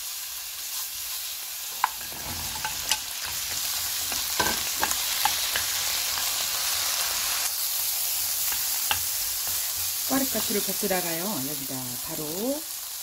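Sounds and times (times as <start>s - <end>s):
garlic sizzling in hot oil: 0.0s - 13.0s
spatula tapping and scraping pan: 1.7s - 6.5s, 8.4s - 10.0s.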